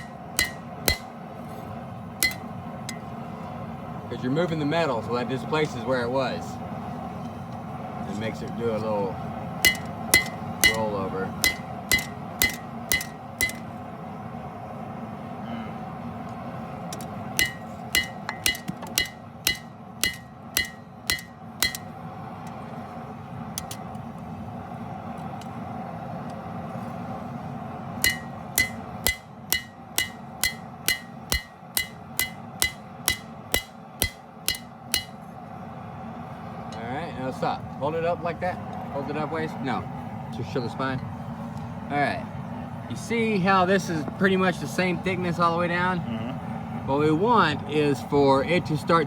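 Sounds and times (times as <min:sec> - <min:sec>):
hammer ringing on hot steel: 0:00.0 - 0:03.2, 0:09.5 - 0:13.8, 0:16.9 - 0:22.1, 0:23.6 - 0:23.9, 0:28.0 - 0:35.6
low hum: 0:00.0 - 0:04.4, 0:08.8 - 0:43.8.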